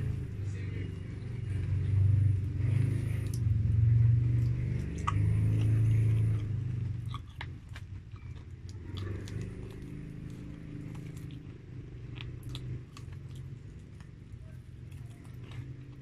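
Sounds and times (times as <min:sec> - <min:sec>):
low droning hum: 0:00.0 - 0:16.0
person chewing fried chicken: 0:04.2 - 0:16.0.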